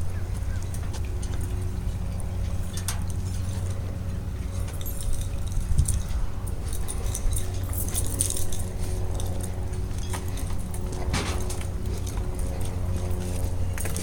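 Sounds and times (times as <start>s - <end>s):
low machine hum: 0.0s - 14.0s
metallic clinking and jingling: 4.5s - 12.8s.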